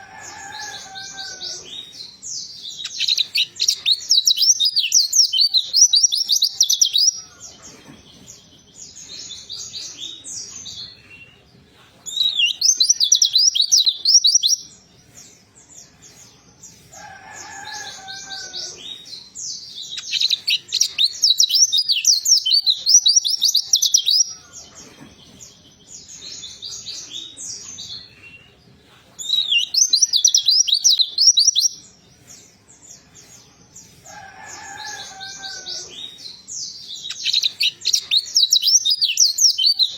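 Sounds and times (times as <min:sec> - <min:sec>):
bird twittering chatter: 0:29.2 - 0:31.8, 0:34.0 - 0:39.9.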